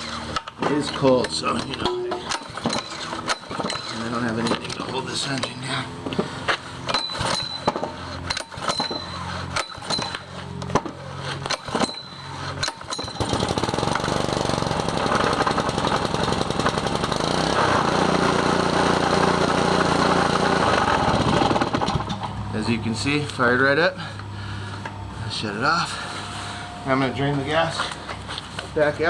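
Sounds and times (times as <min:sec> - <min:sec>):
small engine running: 0:00.0 - 0:22.2
pull-start knocks and rattles: 0:00.0 - 0:22.5.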